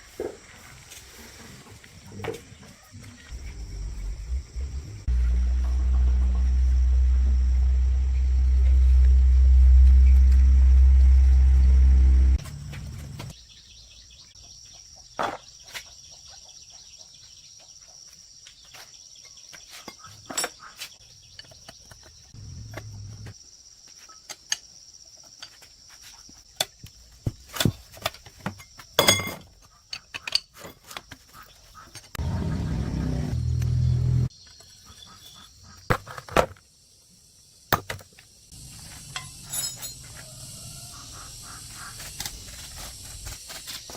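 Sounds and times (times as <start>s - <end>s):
insects chirping: 0.0s - 43.9s
low steady rumble: 3.0s - 13.3s, 32.2s - 34.3s.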